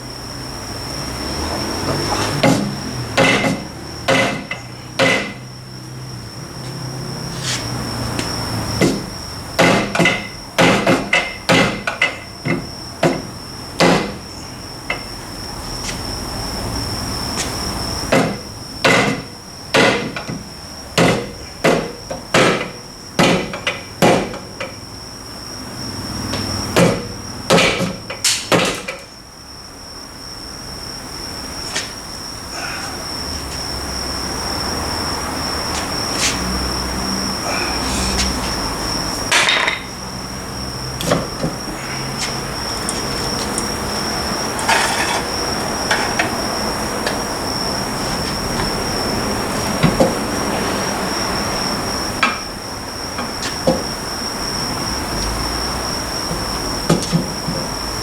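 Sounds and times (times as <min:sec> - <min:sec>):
hammer tapping on metal: 0:02.4 - 0:05.5, 0:08.8 - 0:14.2.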